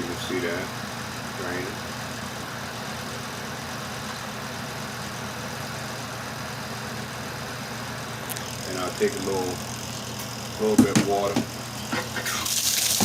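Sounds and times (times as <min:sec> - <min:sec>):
washing machine motor hum: 0:00.0 - 0:13.0
wash tub draining: 0:10.7 - 0:13.0.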